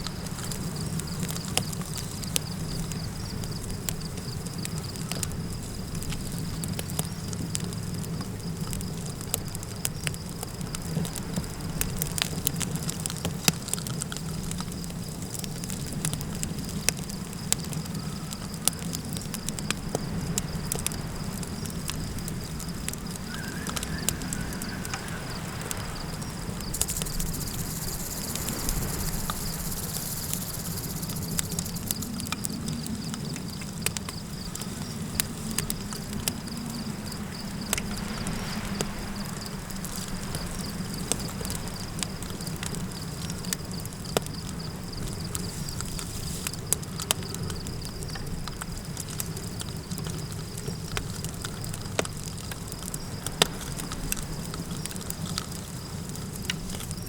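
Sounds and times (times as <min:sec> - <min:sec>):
campfire crackling: 0:00.0 - 0:57.0
crickets chirring: 0:00.0 - 0:57.0
wind rumbling: 0:19.0 - 0:45.9.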